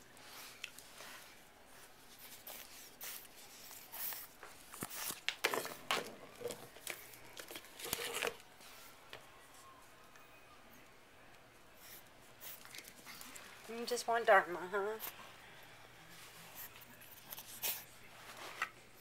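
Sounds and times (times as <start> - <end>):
crinkly scrapes: 0.1 - 8.9, 16.1 - 18.8
rustling and scuffling: 16.1 - 19.0.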